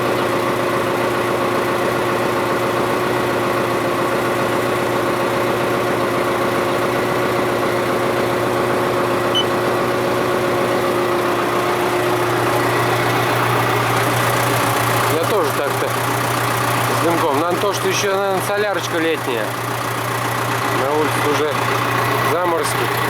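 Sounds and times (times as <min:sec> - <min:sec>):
tractor diesel engine idling: 0:00.0 - 0:23.0
constant whine: 0:08.5 - 0:23.0.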